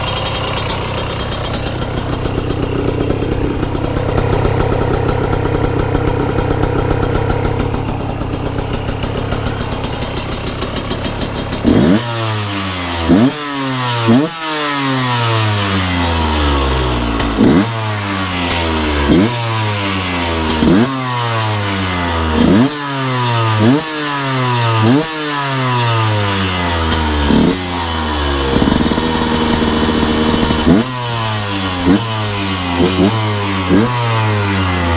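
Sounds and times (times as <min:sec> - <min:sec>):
two-stroke engine idling and revving: 0:00.0 - 0:34.9.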